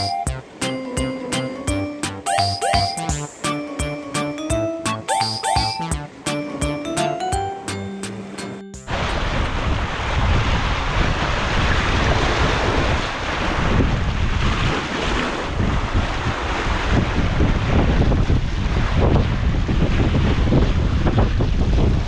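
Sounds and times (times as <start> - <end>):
wind buffeting microphone: 9.5 - 22.0.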